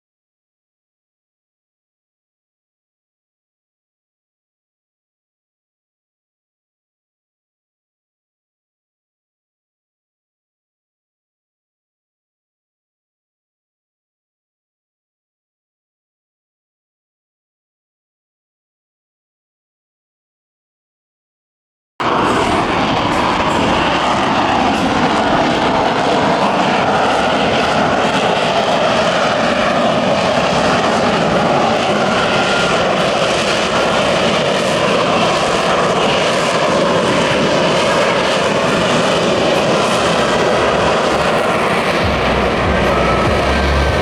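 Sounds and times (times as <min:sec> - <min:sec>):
jet engine roaring: 0:22.0 - 0:44.0
deep rumble: 0:40.4 - 0:44.0
faint high whine: 0:40.4 - 0:44.0.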